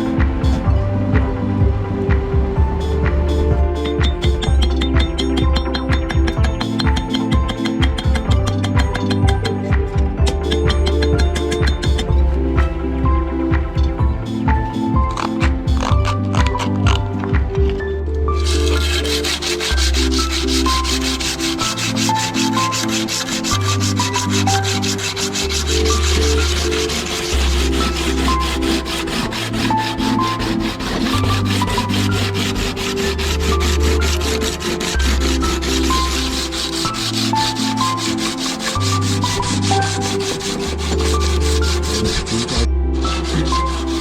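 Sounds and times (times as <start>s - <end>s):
background music with slow bass: 0.0s - 44.0s
sandpaper rubbing: 15.1s - 17.0s, 18.4s - 44.0s.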